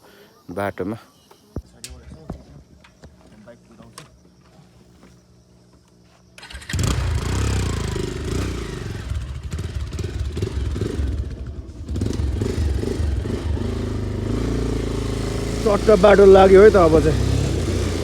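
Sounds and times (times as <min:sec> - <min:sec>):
motorcycle engine revving: 0:06.4 - 0:18.0.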